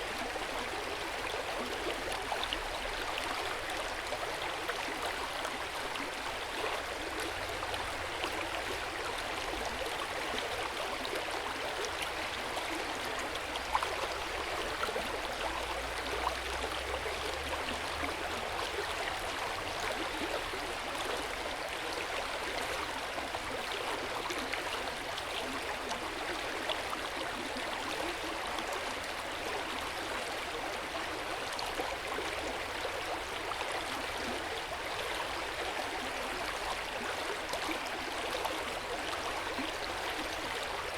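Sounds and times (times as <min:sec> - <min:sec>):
stream flowing: 0:00.0 - 0:40.9.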